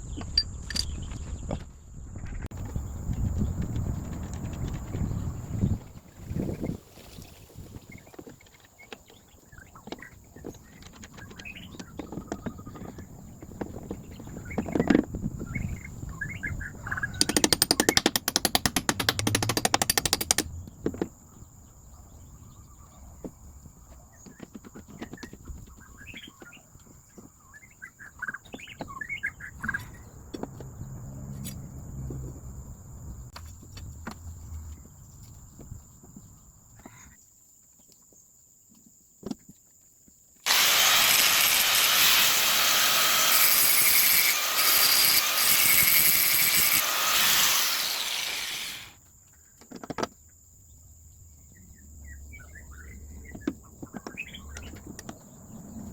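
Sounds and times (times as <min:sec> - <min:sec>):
power tool running: 0:17.3 - 0:20.4, 0:40.5 - 0:49.0.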